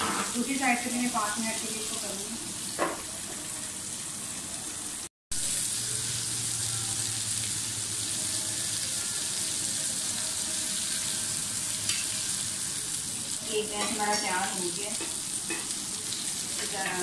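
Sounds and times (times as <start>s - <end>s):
skewers sizzling on grill pan: 0.0s - 17.0s.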